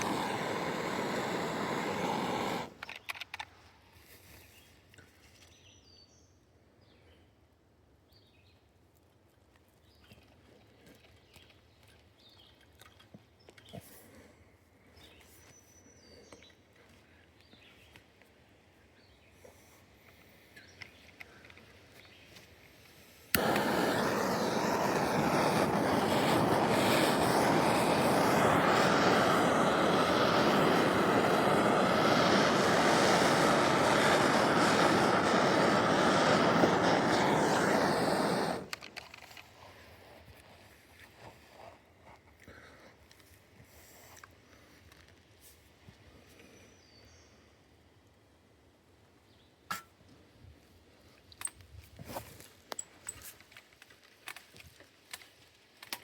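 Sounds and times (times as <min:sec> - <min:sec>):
air hissing into vacuum line: 0:00.0 - 0:02.8, 0:22.9 - 0:39.0.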